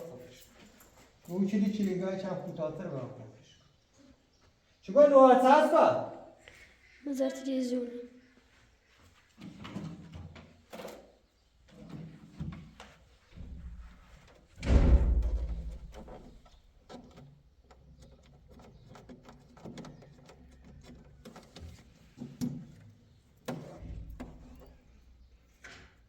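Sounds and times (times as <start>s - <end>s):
knocks and clicks of handling: 9.4s - 25.0s.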